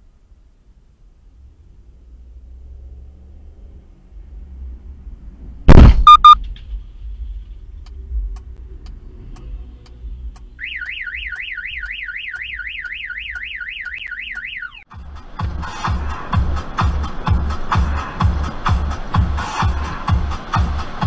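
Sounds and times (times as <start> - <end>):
low rumble: 1.2 - 10.6
short loud beep: 5.7 - 6.4
car alarm warbling: 6.0 - 6.4, 10.6 - 14.9
music: 14.9 - 21.0.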